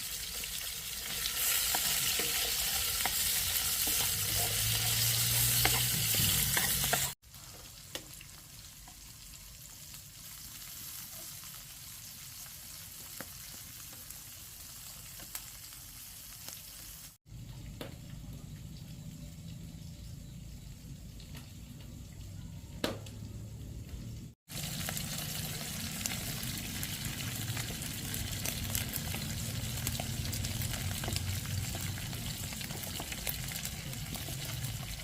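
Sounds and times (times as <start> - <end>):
food sizzling in a pan: 0.0 - 17.2, 24.5 - 35.0.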